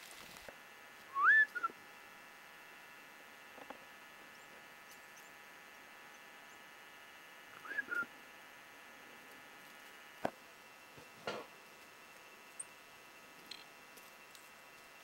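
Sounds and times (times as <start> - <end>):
faint steady hum: 0.0 - 15.0
bird call: 7.6 - 8.1.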